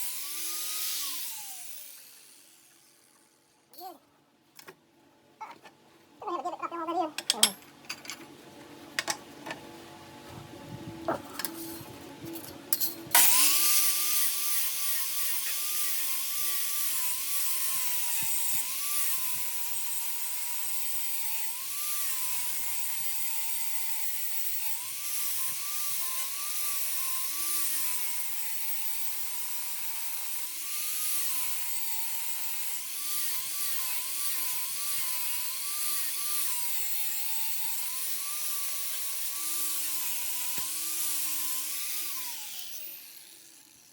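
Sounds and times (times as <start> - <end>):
angle grinder grinding steel: 0.0 - 3.2, 13.2 - 43.9.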